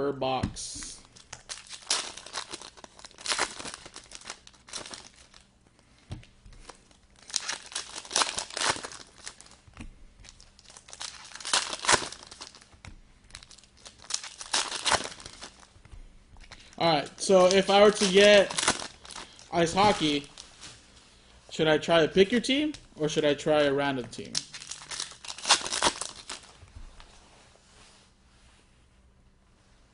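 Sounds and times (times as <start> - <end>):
pack wrappers tearing and crinkling: 1.0 - 5.5, 6.5 - 15.8, 16.4 - 20.6, 24.2 - 26.6.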